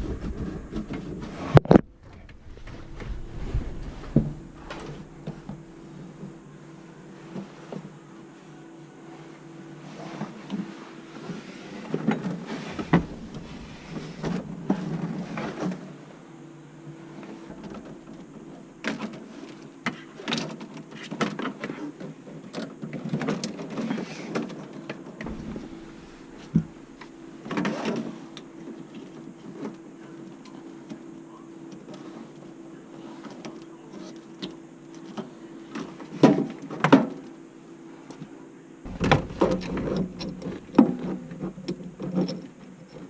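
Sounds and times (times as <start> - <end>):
faint hum: 0.0 - 22.8, 23.7 - 43.0
tools knocking and scraping: 12.6 - 15.7, 25.2 - 28.2, 38.9 - 43.0.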